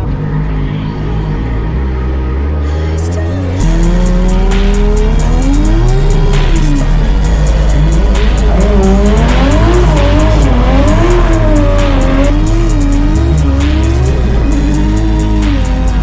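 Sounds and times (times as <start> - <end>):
car engine revving: 0.0 - 16.0
music with steady beat: 3.2 - 16.0.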